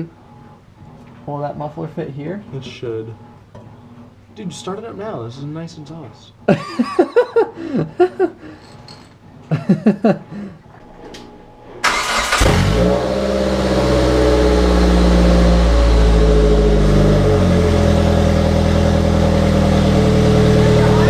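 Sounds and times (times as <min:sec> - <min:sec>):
car engine starting and running: 0:11.8 - 0:21.0
voices: 0:20.4 - 0:21.0.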